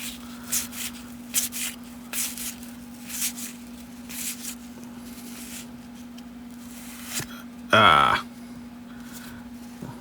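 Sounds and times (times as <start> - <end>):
cards sliding papery swishes: 0.0 - 7.3
steady low hum: 0.0 - 10.0.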